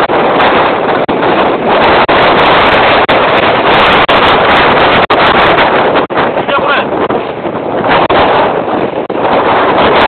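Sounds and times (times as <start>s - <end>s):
storm wind blasting microphone: 0.0s - 10.0s.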